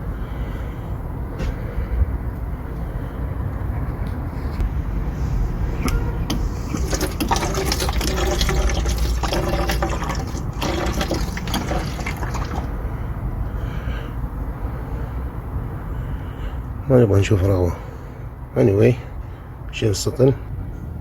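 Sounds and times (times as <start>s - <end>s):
steady low rumble: 0.0s - 7.5s
fuel splashing into a bucket: 5.4s - 12.8s.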